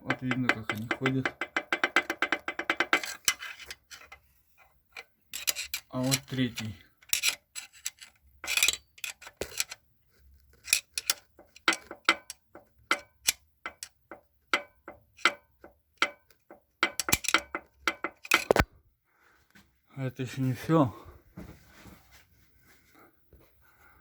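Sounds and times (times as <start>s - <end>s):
metallic clicks and knocks: 0.0s - 4.2s, 5.0s - 9.8s, 10.6s - 18.7s.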